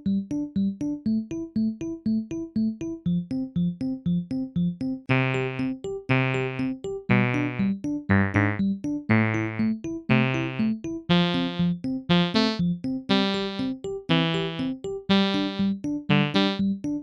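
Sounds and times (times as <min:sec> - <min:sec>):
keyboard tune with chords: 0:05.1 - 0:17.0.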